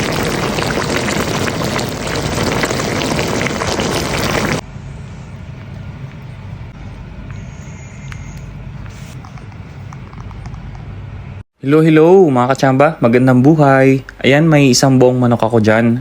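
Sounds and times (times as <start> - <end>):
loud dense crackling: 0.0 - 4.6
low hum: 0.0 - 11.4.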